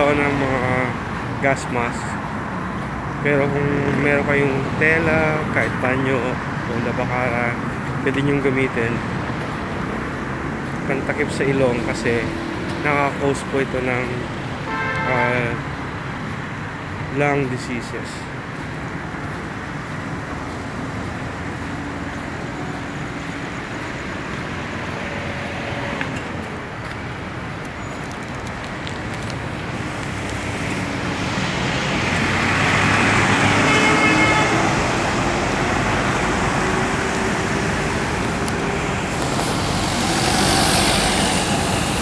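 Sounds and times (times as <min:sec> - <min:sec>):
road traffic: 0:00.0 - 0:42.0
vehicle passing close: 0:29.2 - 0:42.0.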